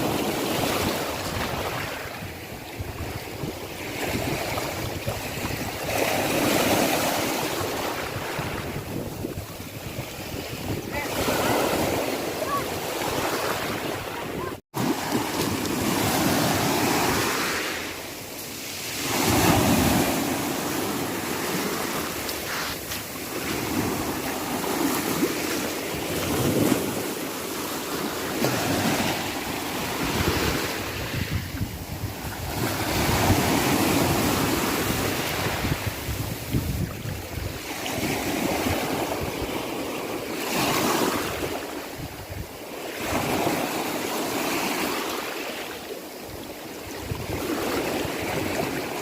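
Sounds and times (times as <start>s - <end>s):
wind buffeting microphone: 0.0s - 14.6s, 28.4s - 39.6s
sea waves breaking: 0.0s - 49.0s.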